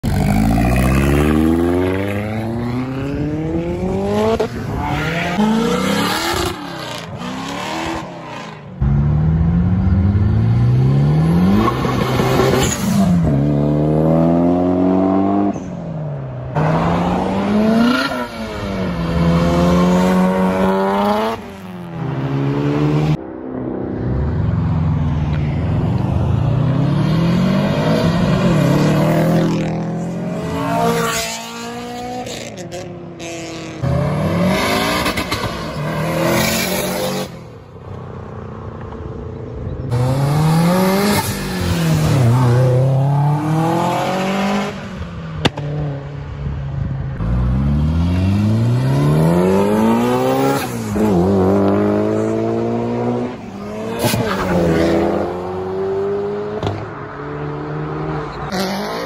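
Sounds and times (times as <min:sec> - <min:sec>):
car engines accelerating hard: 0:00.0 - 0:15.7.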